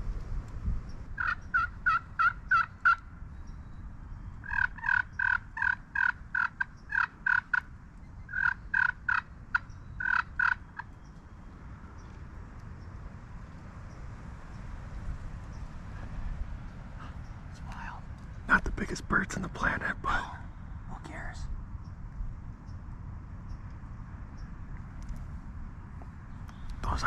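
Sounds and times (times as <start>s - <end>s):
wild turkey calling: 1.2s - 3.1s, 4.4s - 11.2s.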